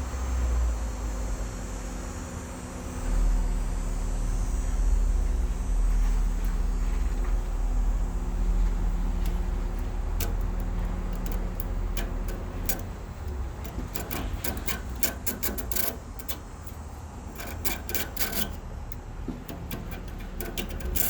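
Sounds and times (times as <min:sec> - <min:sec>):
comb rasping through metal fins: 0:08.5 - 0:21.0.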